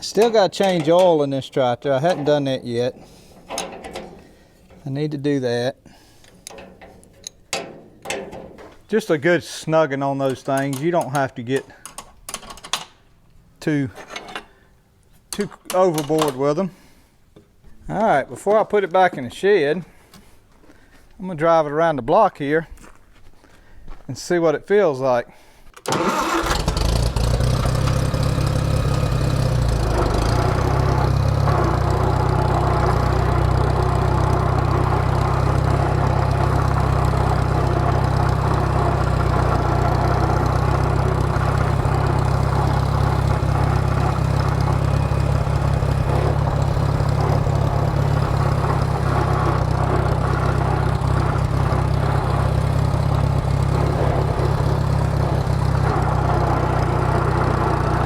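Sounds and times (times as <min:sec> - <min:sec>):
tractor engine running steadily: 0:00.0 - 0:05.0, 0:06.1 - 0:08.9, 0:25.8 - 0:58.0.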